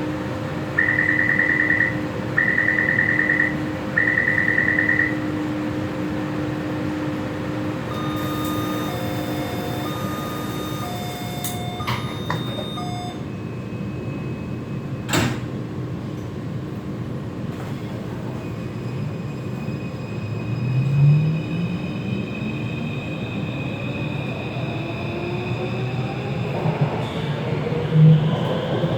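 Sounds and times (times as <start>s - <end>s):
short electronic beeps: 0.8s - 5.2s
train doors sliding shut: 8.0s - 13.2s, 15.0s - 16.4s, 17.5s - 18.5s.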